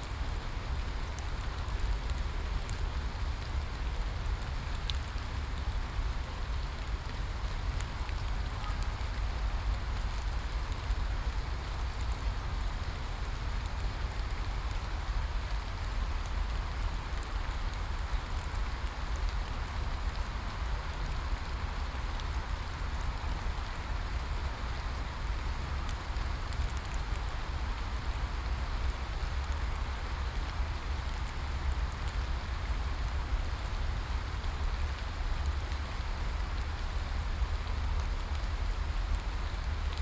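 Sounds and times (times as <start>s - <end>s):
steady rain hiss: 0.0s - 40.0s.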